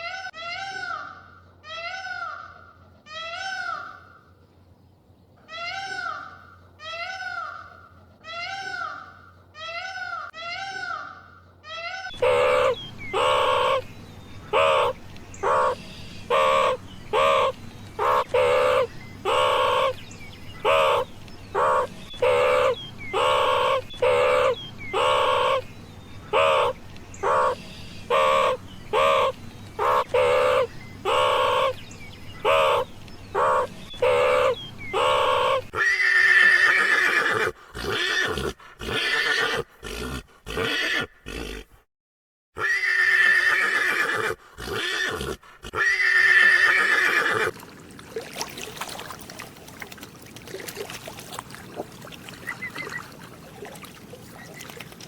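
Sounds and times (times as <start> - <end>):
animal calling: 5.4 - 41.8, 42.6 - 47.6, 51.6 - 53.4
horse neighing: 33.6 - 41.8, 42.6 - 47.6.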